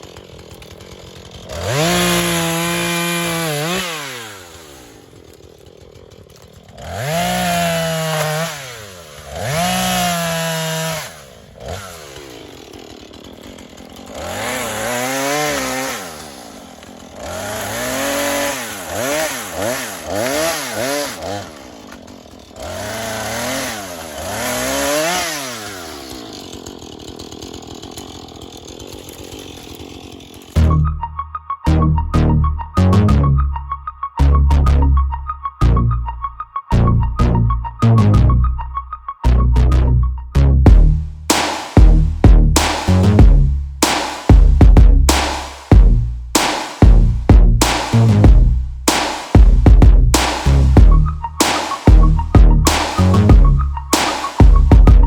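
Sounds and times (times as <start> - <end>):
chainsaw idling and revving: 0.0 - 31.2, 40.7 - 55.0
music: 30.6 - 55.0.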